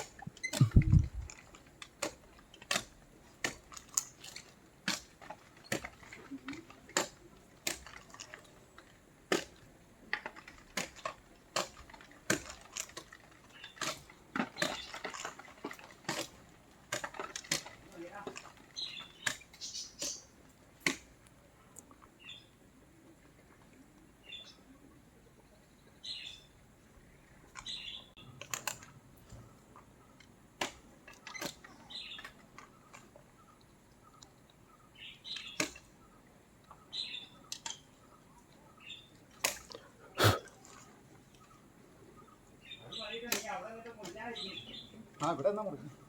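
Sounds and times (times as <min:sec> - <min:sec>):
birds chirping: 0:00.0 - 0:01.4, 0:18.0 - 0:20.5, 0:24.1 - 0:28.4, 0:31.3 - 0:46.0.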